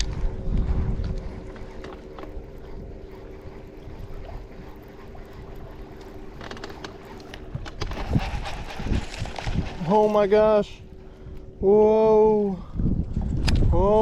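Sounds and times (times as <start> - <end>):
boat motor humming: 0.0 - 13.4
wind on microphone: 0.0 - 14.0.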